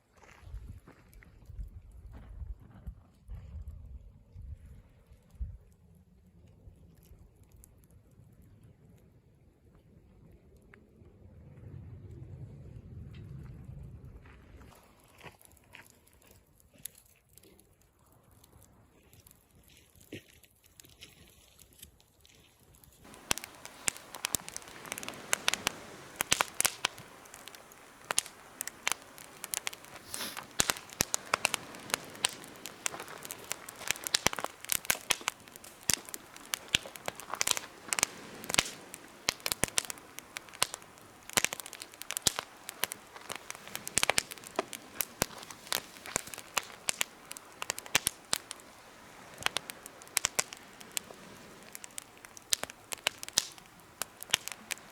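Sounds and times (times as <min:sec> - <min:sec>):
wood fire crackling and popping: 0:23.1 - 0:54.9.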